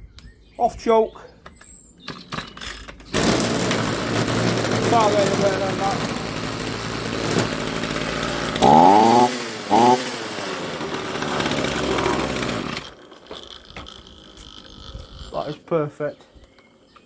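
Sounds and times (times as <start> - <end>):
strimmer engine revving: 2.8 - 14.8.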